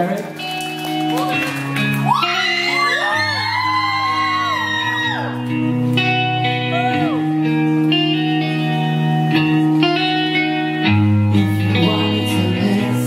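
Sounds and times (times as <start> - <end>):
live rock band playing: 0.0 - 13.0
shrill arching cries: 2.1 - 5.4.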